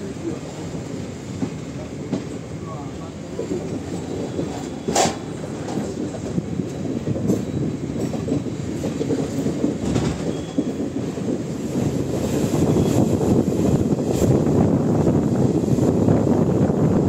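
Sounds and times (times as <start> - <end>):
train wheels rumbling: 0.0 - 17.0
wheels clacking over rail joints: 3.4 - 12.9.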